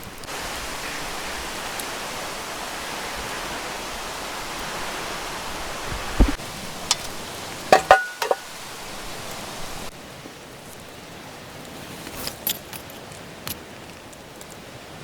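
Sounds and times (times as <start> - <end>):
outdoor hiss: 0.0 - 15.0.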